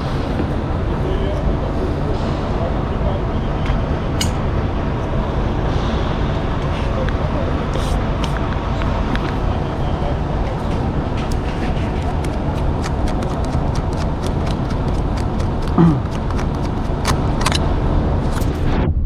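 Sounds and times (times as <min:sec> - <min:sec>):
low rumble: 0:17.1 - 0:19.0.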